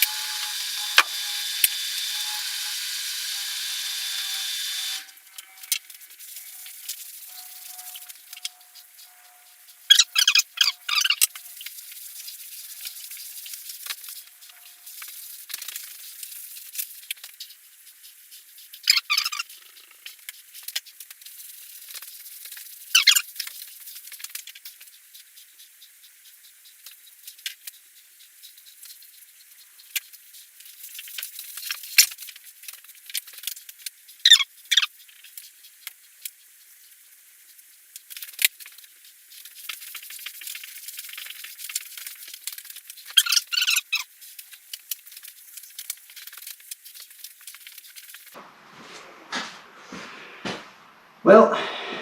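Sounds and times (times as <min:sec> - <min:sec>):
short rubbing scrapes: 0:48.3 - 0:51.2.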